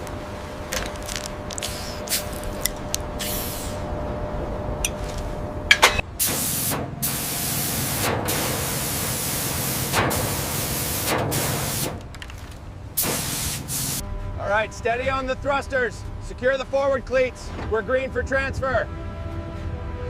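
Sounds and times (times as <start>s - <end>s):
low rumble: 0.0s - 6.2s, 14.0s - 20.0s
loud hissing spray: 1.6s - 2.6s, 3.2s - 3.9s, 6.2s - 12.0s, 13.0s - 14.0s.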